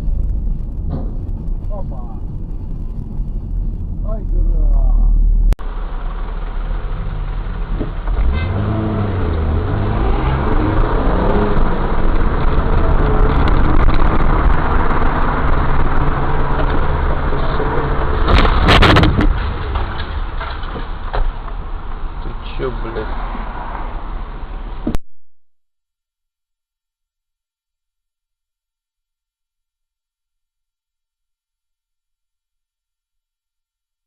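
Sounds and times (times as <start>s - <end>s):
car engine accelerating: 0.0s - 24.9s
road noise inside car: 0.0s - 25.0s
loud sudden noise: 5.1s - 21.4s.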